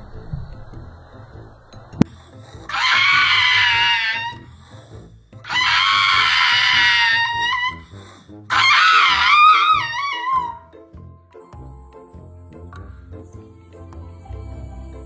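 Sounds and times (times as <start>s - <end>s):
background music with steady beat: 0.0s - 3.4s, 9.3s - 15.0s
dog howling: 2.7s - 4.5s, 5.5s - 7.9s, 8.5s - 10.8s.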